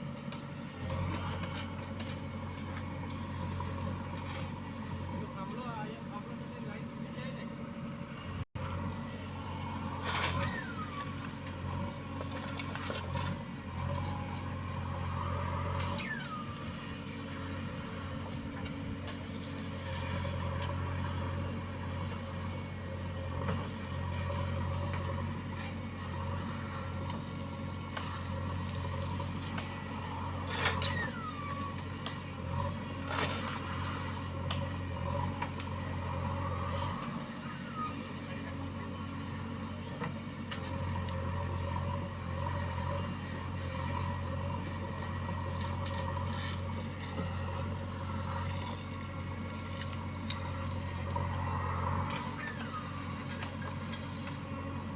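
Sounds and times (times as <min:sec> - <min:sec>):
heavy machinery diesel engine: 0:00.0 - 0:54.9
short falling squeals: 0:30.7 - 0:31.8.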